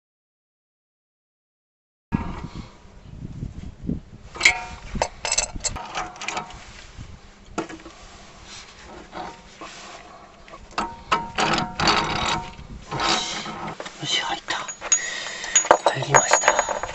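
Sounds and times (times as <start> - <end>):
metallic clicks and scrapes: 4.4 - 6.8, 8.6 - 10.1, 10.7 - 16.9.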